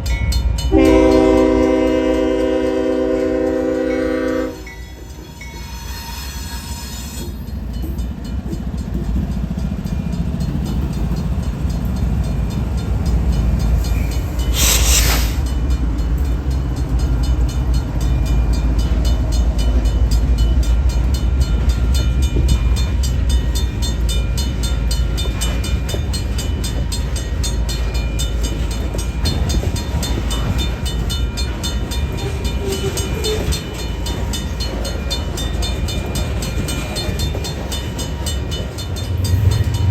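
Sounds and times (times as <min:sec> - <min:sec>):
freight train rumbling past: 0:00.0 - 0:39.9
short hiss: 0:14.5 - 0:15.5.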